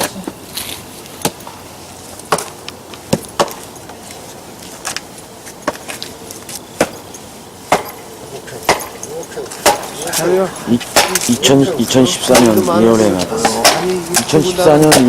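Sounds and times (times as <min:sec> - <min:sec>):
firewood knocking and cracking: 0:02.2 - 0:04.0, 0:04.8 - 0:08.0, 0:08.6 - 0:11.5, 0:12.2 - 0:12.6, 0:13.4 - 0:15.0.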